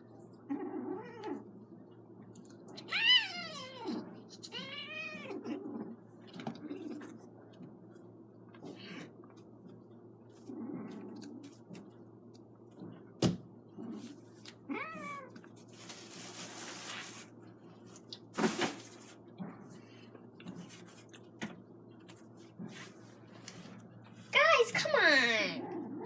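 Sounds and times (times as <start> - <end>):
kittens scuffling: 13.8 - 19.2.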